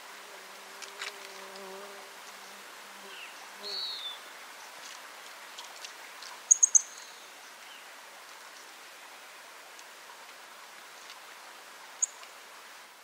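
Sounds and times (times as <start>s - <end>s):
faint background hiss: 0.0s - 13.0s
songbird high chirps: 3.1s - 4.3s, 6.3s - 7.8s, 12.0s - 12.2s.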